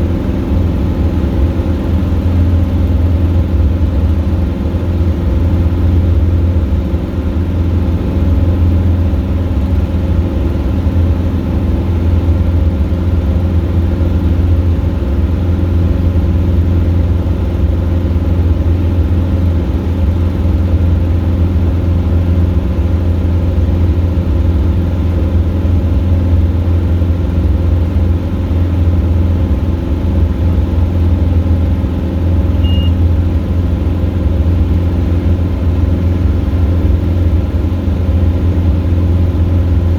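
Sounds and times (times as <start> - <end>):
light aircraft engine drone: 0.0 - 39.9
short high beep: 32.6 - 33.1.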